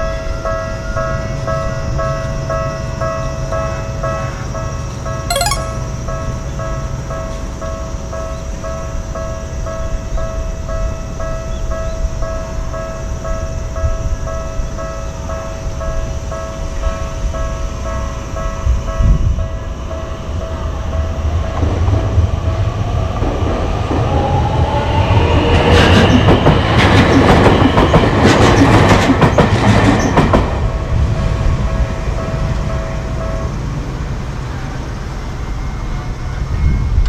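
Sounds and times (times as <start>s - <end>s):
two-note ringing tone: 5.3s - 5.9s.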